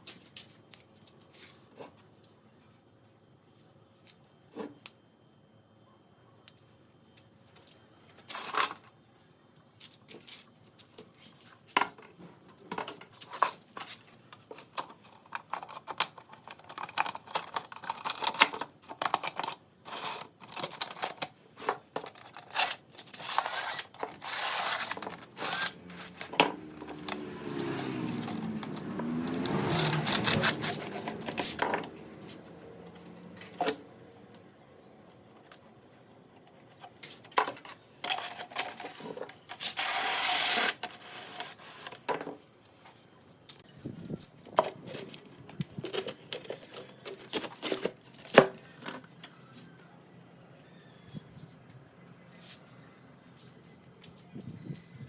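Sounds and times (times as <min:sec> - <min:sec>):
small power tool whining: 0:22.5 - 0:33.4, 0:39.7 - 0:42.0.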